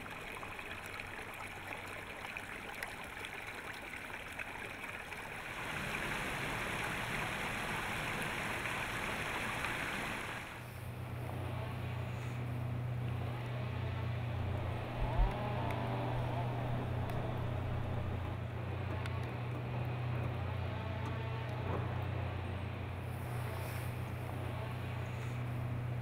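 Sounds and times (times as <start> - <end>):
heavy machinery engine droning: 10.6 - 26.0.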